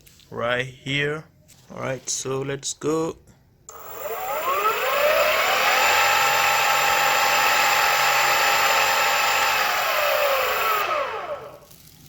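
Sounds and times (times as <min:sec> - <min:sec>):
electric motors whining: 0:03.7 - 0:11.7.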